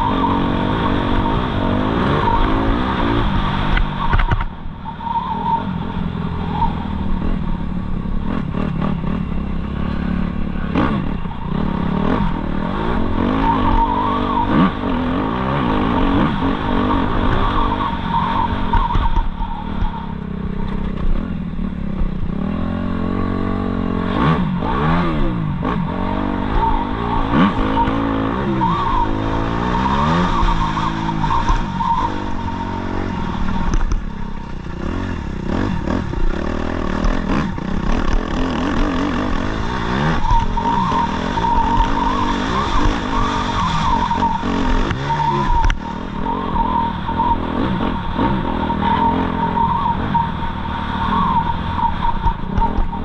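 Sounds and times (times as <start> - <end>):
motocross bike engine revving: 0.0 - 3.9, 6.9 - 19.0, 20.2 - 53.0.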